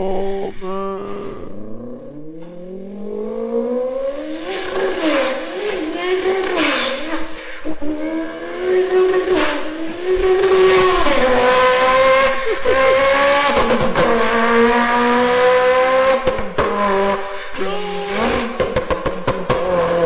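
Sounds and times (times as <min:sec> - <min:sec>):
person imitating car engine: 0:00.0 - 0:03.1, 0:09.9 - 0:14.1, 0:17.3 - 0:19.0.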